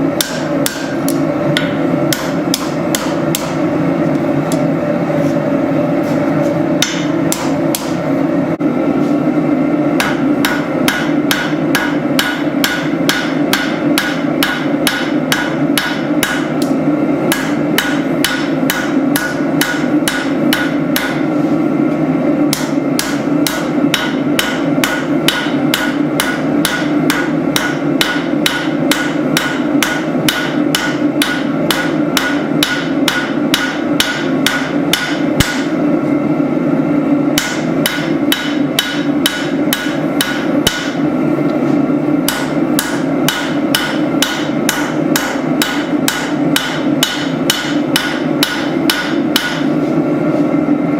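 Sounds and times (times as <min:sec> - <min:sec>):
hammer striking steel on anvil: 0:00.2 - 0:03.6, 0:06.8 - 0:08.0, 0:10.0 - 0:21.3, 0:22.5 - 0:35.8, 0:37.3 - 0:41.0, 0:42.2 - 0:49.7.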